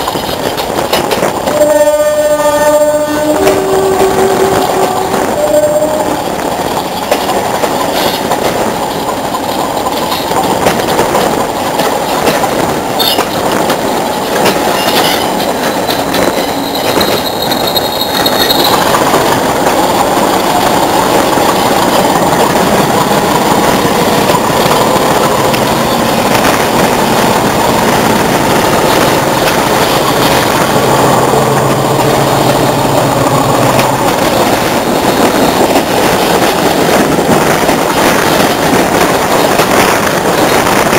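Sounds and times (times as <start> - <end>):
diesel locomotive engine running: 0.0 - 40.9
train rail noise: 0.0 - 40.9
high squeal: 14.7 - 19.0.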